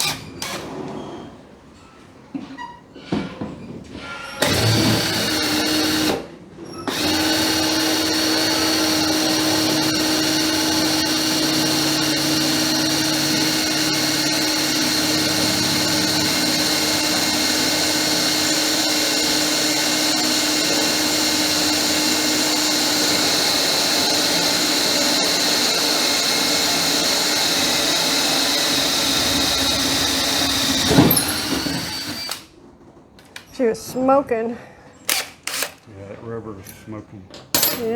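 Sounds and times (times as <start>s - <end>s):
electric drill running: 4.4s - 32.5s, 35.1s - 35.8s.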